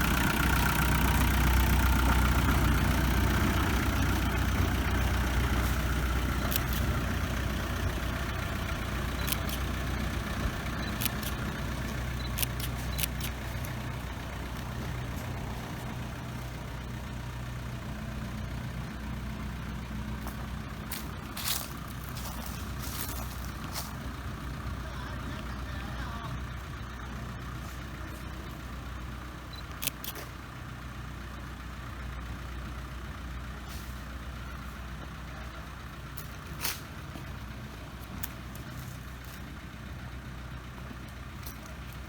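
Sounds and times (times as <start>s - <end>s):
railway engine running: 0.0s - 42.0s
sharp clicks: 6.4s - 7.0s, 9.1s - 9.8s, 10.7s - 13.8s, 29.6s - 30.3s.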